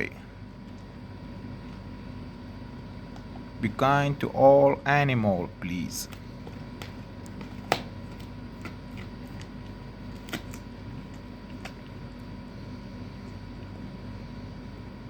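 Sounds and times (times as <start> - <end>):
steady low hum: 0.0 - 15.0
dog teeth cracking on bone: 6.8 - 12.0.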